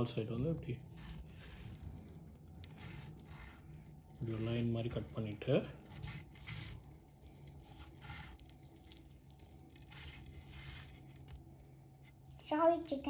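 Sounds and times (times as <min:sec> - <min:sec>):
knife cutting raw chicken: 0:00.4 - 0:11.4.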